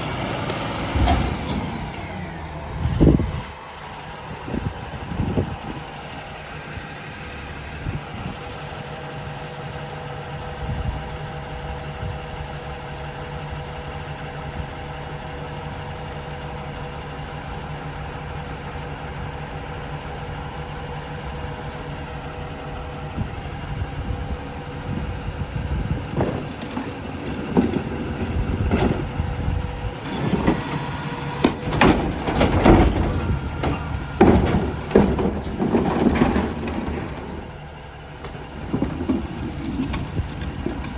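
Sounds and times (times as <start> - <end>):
garbage truck engine idling: 0.0 - 40.9
irregular bangs and clatter: 26.1 - 29.2, 30.0 - 40.9.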